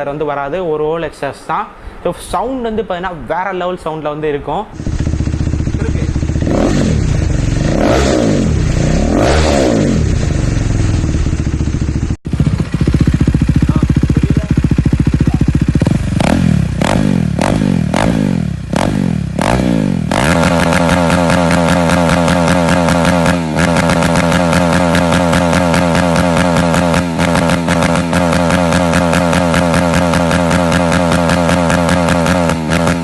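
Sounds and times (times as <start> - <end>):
motorcycle engine revving: 4.8 - 33.0.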